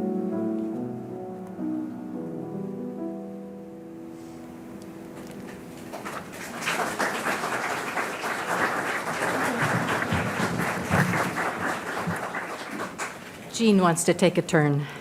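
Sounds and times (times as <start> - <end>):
audience applauding: 5.3 - 13.5.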